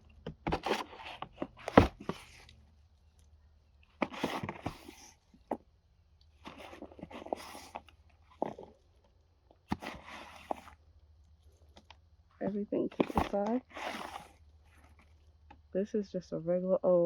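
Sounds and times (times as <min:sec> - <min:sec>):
compost rustling and scraping: 0:03.9 - 0:05.6, 0:06.4 - 0:09.0, 0:09.7 - 0:15.4.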